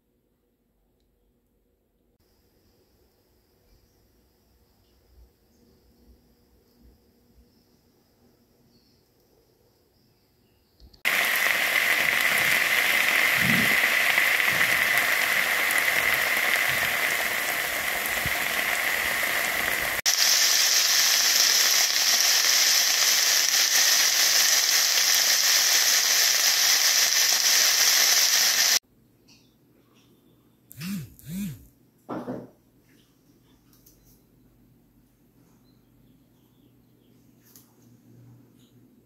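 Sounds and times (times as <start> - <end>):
steak frying: 11.0 - 28.8
vegetables sizzling in frying pan: 11.0 - 28.8.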